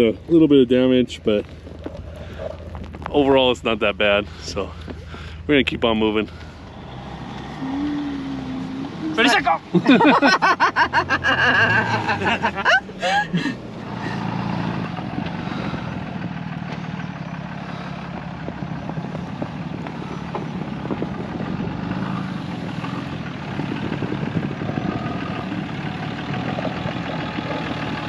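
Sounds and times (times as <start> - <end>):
road noise: 0.0 - 28.0
vehicle engine running: 0.0 - 28.0.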